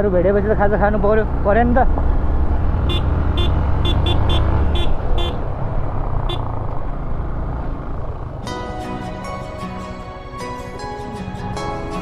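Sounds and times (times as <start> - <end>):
motorcycle engine and wind rumble: 0.0 - 8.6.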